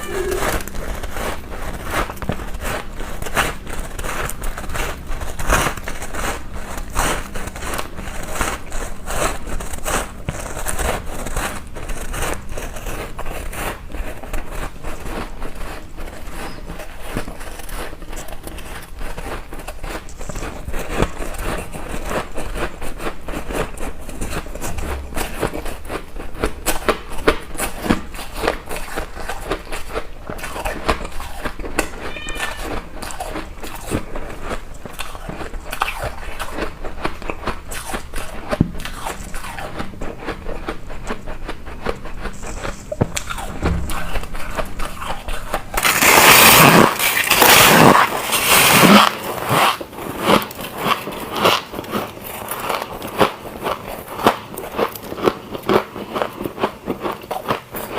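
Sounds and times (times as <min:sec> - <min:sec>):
person crunching ice: 0:27.6 - 0:57.6.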